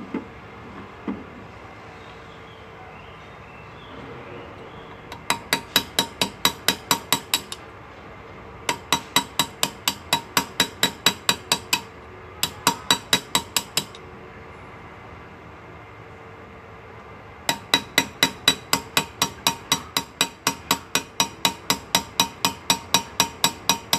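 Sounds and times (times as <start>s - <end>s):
hammer tapping chisel on metal: 5.1s - 7.6s, 8.7s - 14.0s, 17.5s - 23.9s.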